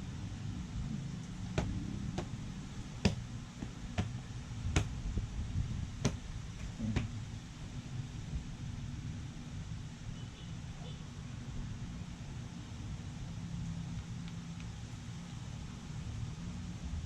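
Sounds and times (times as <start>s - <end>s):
low steady rumble: 0.0s - 17.0s
sharp clicks and smacks: 1.2s - 2.4s, 3.0s - 5.2s, 6.0s - 7.2s.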